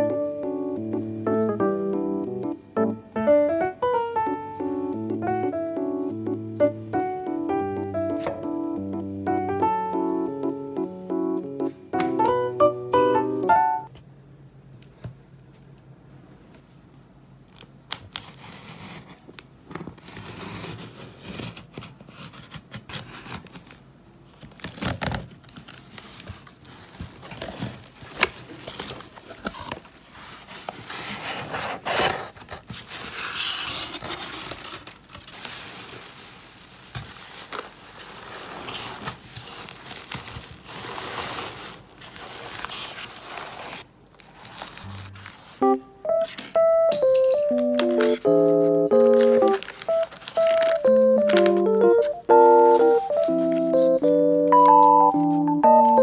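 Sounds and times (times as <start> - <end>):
plastic and paper rustling: 17.5 - 46.6, 47.3 - 56.0
handling clicks and knocks: 46.1 - 48.4.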